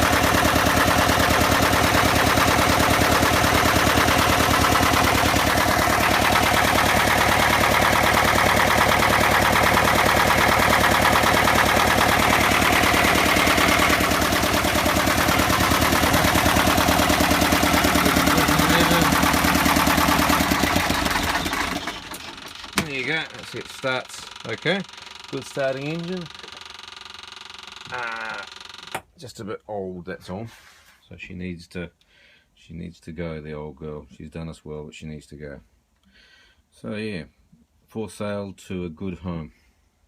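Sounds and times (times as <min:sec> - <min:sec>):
diesel engine clattering: 0:00.0 - 0:28.6.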